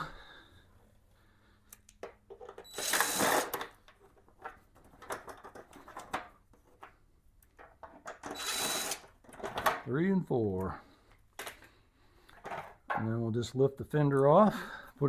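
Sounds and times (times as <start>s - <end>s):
impact driver spinning screws: 2.6s - 3.8s, 8.2s - 9.2s.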